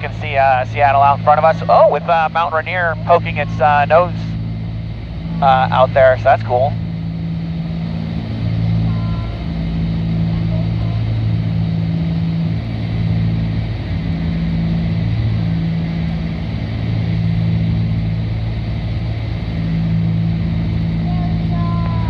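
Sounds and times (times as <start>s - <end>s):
propeller plane engines droning: 0.0s - 22.0s.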